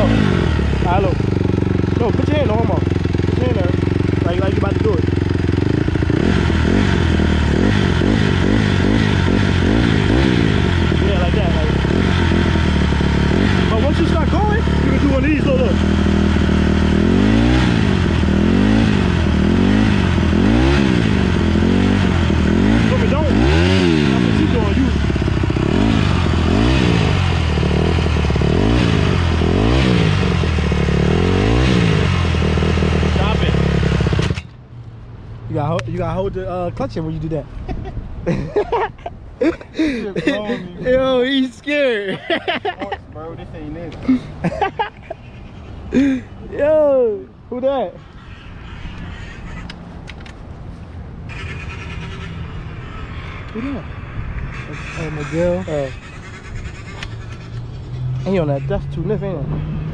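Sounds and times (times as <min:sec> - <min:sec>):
dirt bike engine throttle blips: 0:00.0 - 0:34.6.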